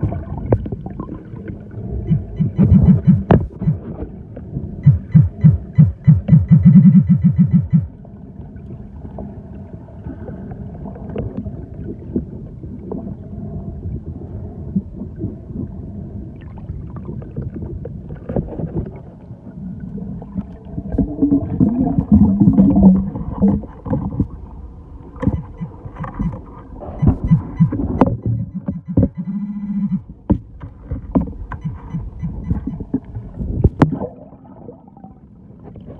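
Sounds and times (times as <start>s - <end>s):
churning water: 0.0s - 13.2s
wavering low tone: 2.0s - 4.0s, 4.8s - 8.0s, 25.2s - 30.2s
fast low pulses: 2.1s - 3.8s, 4.8s - 7.9s.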